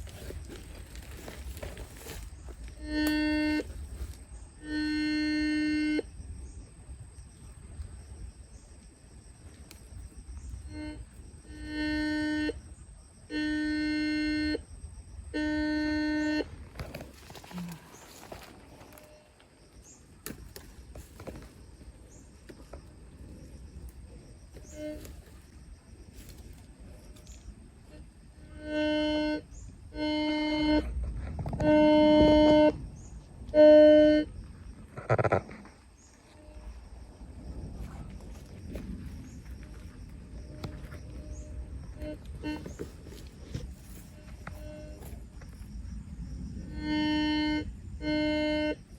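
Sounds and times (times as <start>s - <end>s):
long steady tones: 0.0s - 48.9s
horn-like toots: 1.1s - 6.1s, 10.6s - 12.6s, 13.3s - 14.6s, 15.3s - 16.9s, 24.6s - 25.4s, 27.9s - 31.0s, 31.6s - 32.8s, 33.5s - 34.3s, 40.5s - 45.3s, 46.6s - 48.9s.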